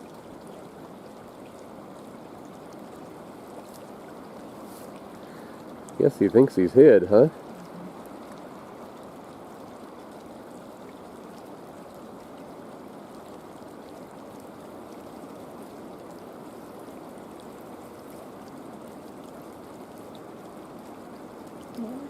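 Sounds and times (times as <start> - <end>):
creek water rushing: 0.0 - 22.0.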